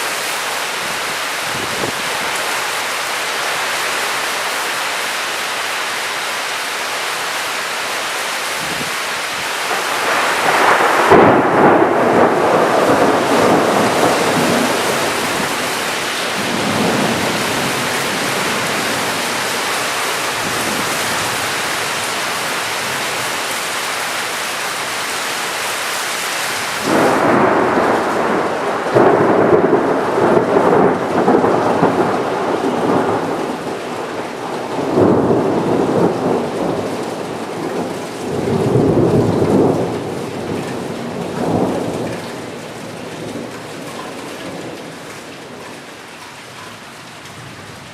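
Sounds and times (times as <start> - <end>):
heavy rain falling: 0.0 - 47.9
rolls of thunder: 9.7 - 18.3, 26.8 - 37.5.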